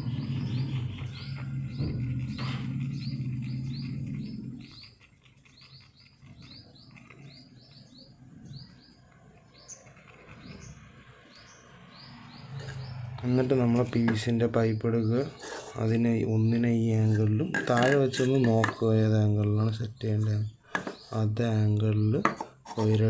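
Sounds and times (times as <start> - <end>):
low hum: 0.0 - 5.0
small bird chirping: 0.0 - 23.0.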